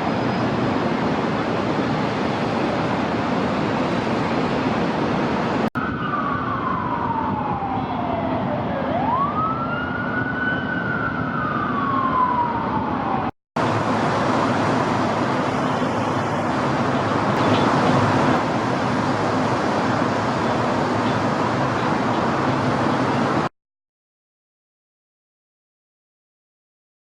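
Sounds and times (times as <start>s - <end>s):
city street traffic: 0.0s - 23.5s
emergency siren wailing: 5.6s - 23.4s.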